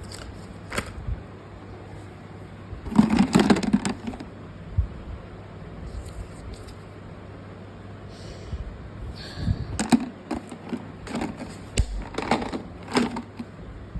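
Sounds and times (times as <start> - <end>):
packaging rustling and scraping: 0.0 - 1.0, 9.8 - 13.5.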